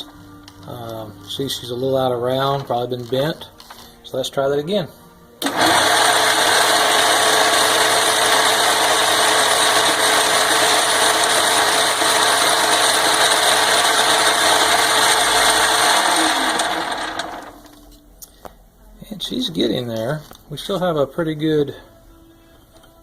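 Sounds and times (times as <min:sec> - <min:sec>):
lathe whirring: 0:05.4 - 0:17.7.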